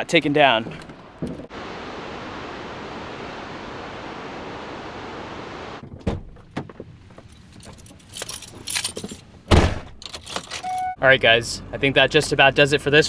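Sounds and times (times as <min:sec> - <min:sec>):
waterfall rushing: 0:01.5 - 0:05.8.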